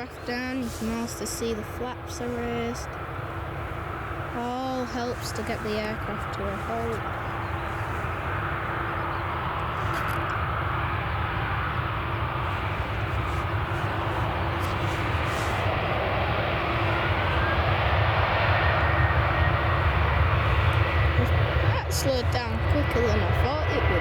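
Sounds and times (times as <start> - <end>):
jet engines rushing: 0.0 - 24.0.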